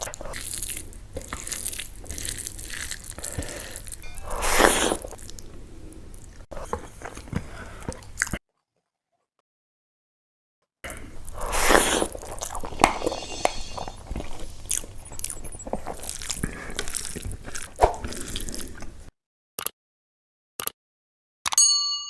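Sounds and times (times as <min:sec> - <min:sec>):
wet chewing and crunching: 0:00.0 - 0:04.0.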